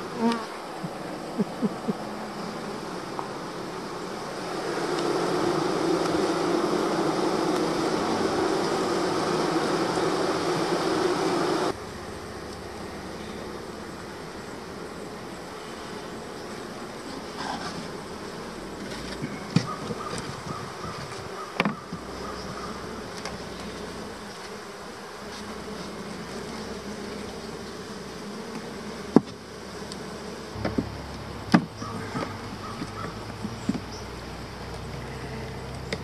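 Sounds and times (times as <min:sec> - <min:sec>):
honeybees humming: 0:00.0 - 0:36.0
sharp knocks: 0:30.6 - 0:30.9.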